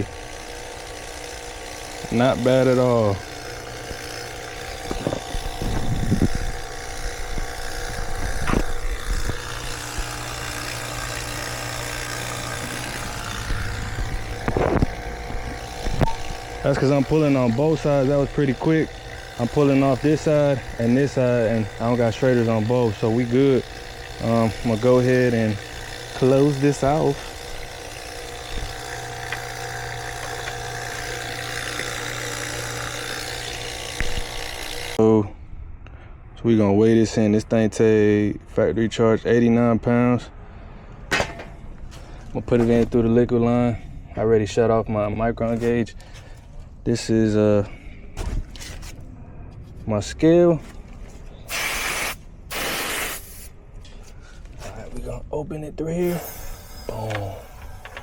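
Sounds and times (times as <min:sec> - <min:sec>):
vacuum pump running: 0:00.0 - 0:35.0, 0:56.0 - 0:58.0.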